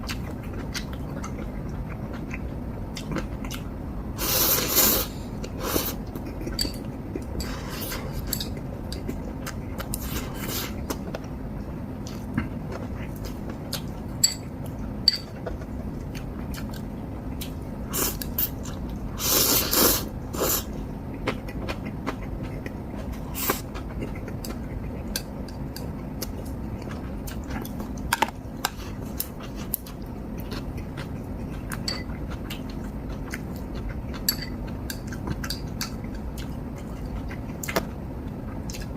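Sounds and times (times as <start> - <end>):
slurping noodles: 19.2 - 20.7
chewing: 21.1 - 37.8, 38.5 - 38.9.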